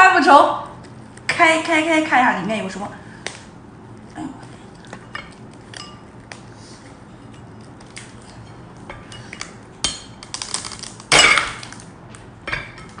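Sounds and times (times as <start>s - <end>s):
shrimp shell cracking: 10.2s - 11.9s.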